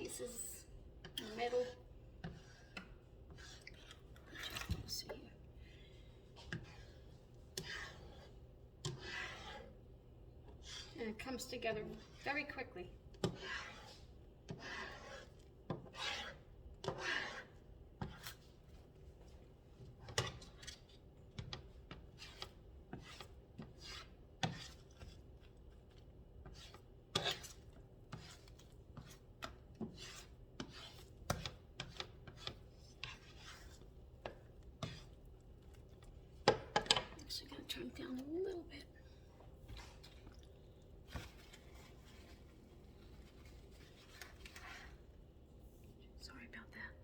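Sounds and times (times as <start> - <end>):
spatula scraping frying pan: 1.1 - 5.0, 6.2 - 18.6, 19.8 - 35.4.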